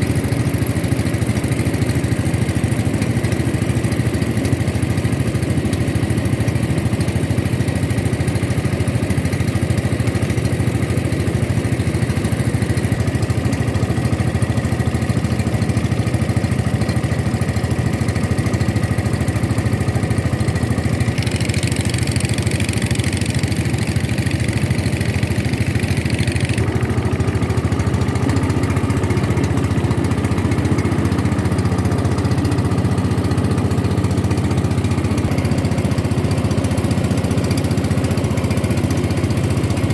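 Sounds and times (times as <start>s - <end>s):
motorboat engine running: 0.0s - 39.9s.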